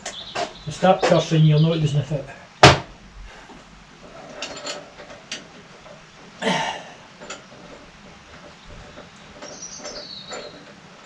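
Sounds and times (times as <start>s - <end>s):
rubber belt scraping rasp: 7.1s - 11.0s.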